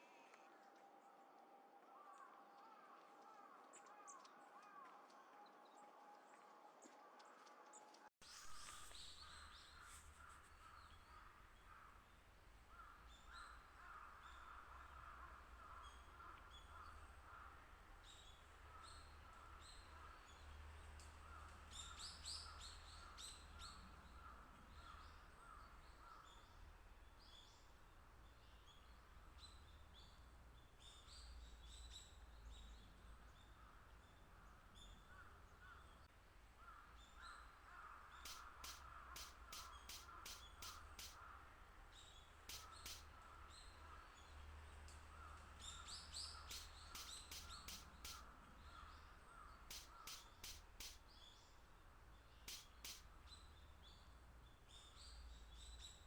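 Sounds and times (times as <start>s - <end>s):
small birds chirping: 8.2s - 56.0s
birds repeating short calls: 36.6s - 44.1s, 45.1s - 51.4s, 52.1s - 53.7s.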